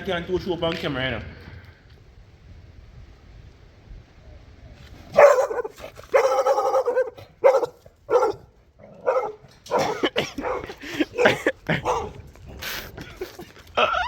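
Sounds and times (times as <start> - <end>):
dog barking loudly: 5.1 - 12.2.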